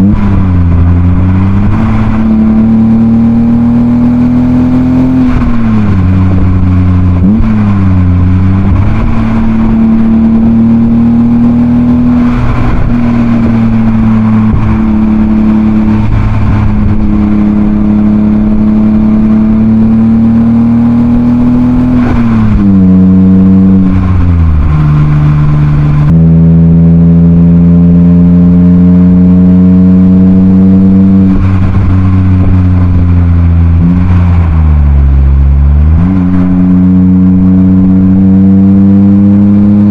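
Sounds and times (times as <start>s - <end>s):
car engine revving while driving: 0.0s - 39.9s.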